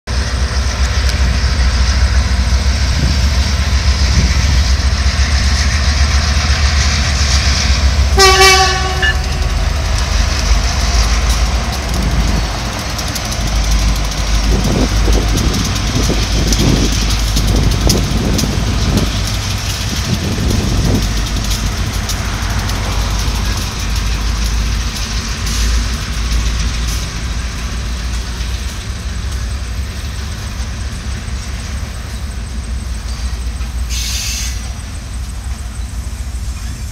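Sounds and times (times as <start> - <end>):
freight train rumbling past: 0.1 - 36.9
hopper cars rolling: 0.1 - 36.9
pulsing locomotive engine: 0.1 - 36.9
locomotive horn blast: 8.1 - 9.7.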